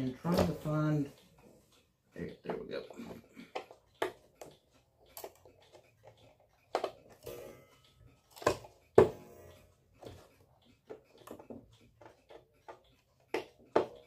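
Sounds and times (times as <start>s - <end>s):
tools clicking and knocking: 2.3s - 7.4s, 8.1s - 9.3s, 10.0s - 14.0s.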